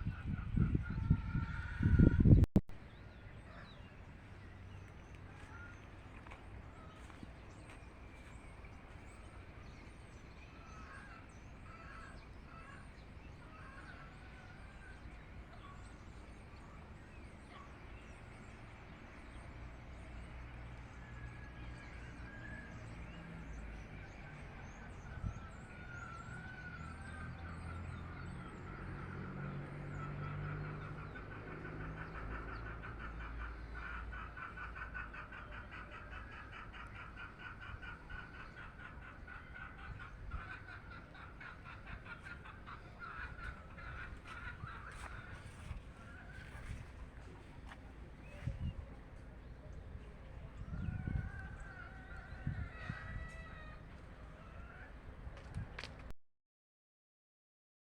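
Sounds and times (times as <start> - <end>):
poultry calling: 30.0 - 48.5.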